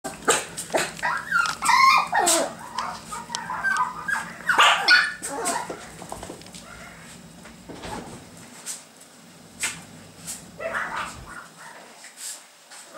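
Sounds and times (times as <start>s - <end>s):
puppies yipping and whimpering: 0.8s - 6.0s.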